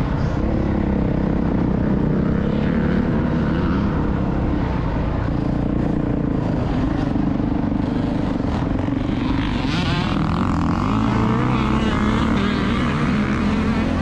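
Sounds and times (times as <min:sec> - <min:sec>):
dirt bike engine running: 0:00.0 - 0:14.0.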